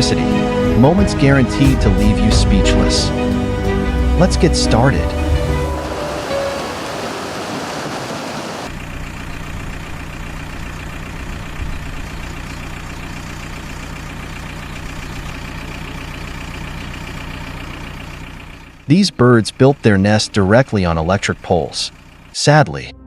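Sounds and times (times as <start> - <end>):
steady engine hum: 0.0 - 22.9
hissing rush: 2.2 - 8.7.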